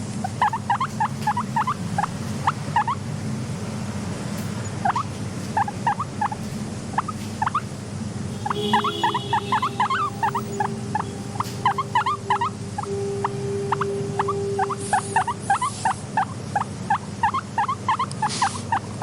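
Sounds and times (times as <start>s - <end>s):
guinea pigs squeaking: 0.0s - 3.1s, 4.4s - 13.0s, 13.7s - 19.0s
steady low hum: 0.0s - 19.0s
held tone: 9.8s - 15.7s.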